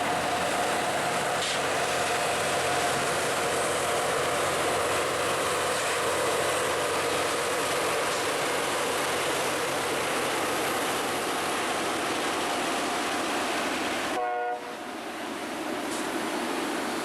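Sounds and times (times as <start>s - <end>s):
rail grinder roaring: 0.0s - 14.2s.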